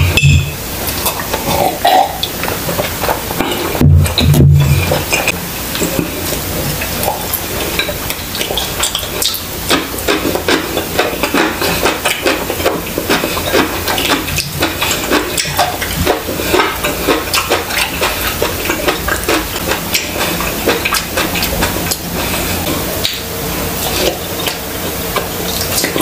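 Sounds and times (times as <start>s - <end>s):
chewing with wet mouth clicks: 6.8s - 26.0s.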